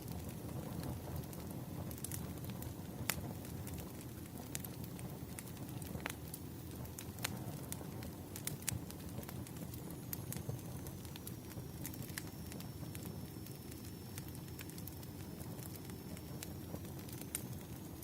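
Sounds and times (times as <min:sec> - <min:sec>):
firewood crackling: 0:00.0 - 0:18.0
faint high whine: 0:09.1 - 0:18.0.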